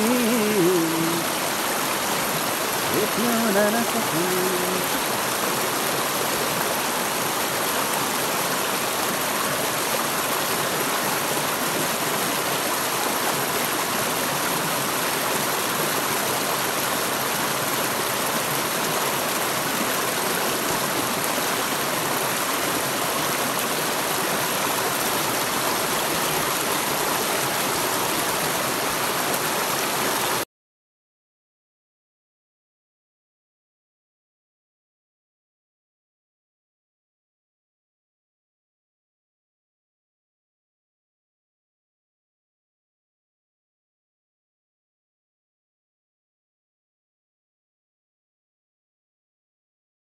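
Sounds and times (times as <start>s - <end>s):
waterfall roaring: 0.0s - 30.4s.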